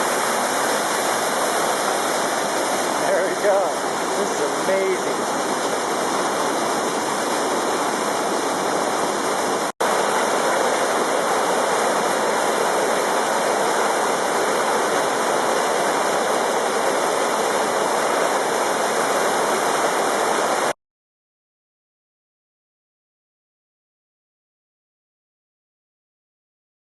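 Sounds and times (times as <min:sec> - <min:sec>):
waterfall rushing: 0:00.0 - 0:20.8.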